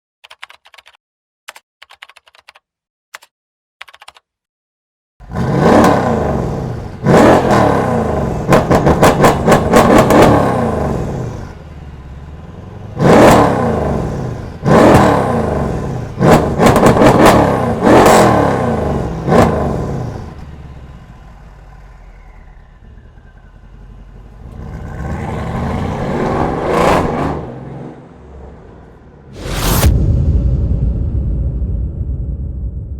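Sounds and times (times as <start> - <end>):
car engine revving and idling: 5.2 - 29.4.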